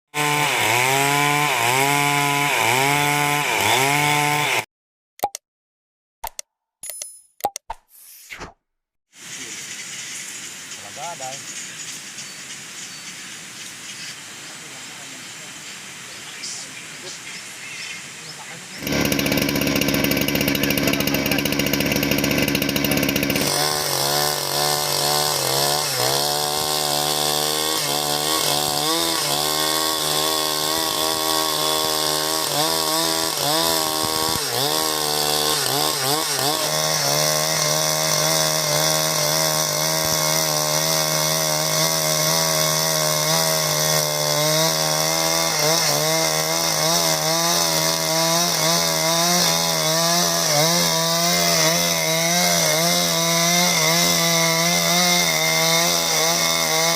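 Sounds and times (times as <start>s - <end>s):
chainsaw cutting timber: 0.1s - 4.7s, 18.7s - 56.9s.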